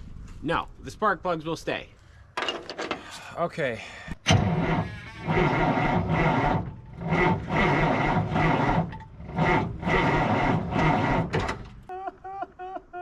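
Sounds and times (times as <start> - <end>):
starter cranking engine slowly: 4.3 - 11.9.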